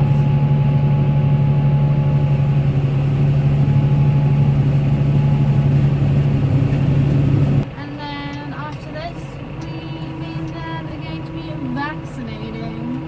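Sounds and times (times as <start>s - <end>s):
tractor engine droning: 0.0s - 7.6s
thin steady whine: 0.0s - 13.0s.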